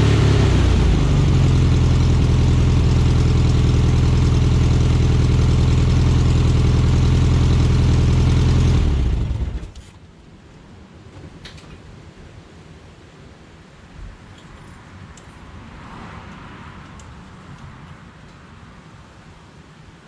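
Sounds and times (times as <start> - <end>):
car engine idling: 0.0 - 9.8
engine running down to a stop: 0.0 - 9.9.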